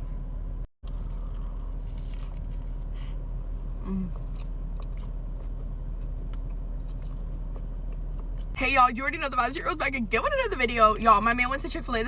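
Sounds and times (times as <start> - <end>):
person biting and chewing food: 0.8 - 8.6.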